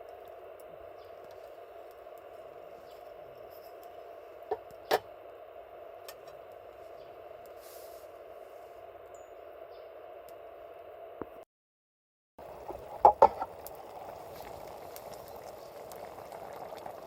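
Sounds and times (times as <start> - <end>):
campfire hissing: 0.0 - 9.1, 12.4 - 17.0
campfire sharp pops: 12.6 - 13.8.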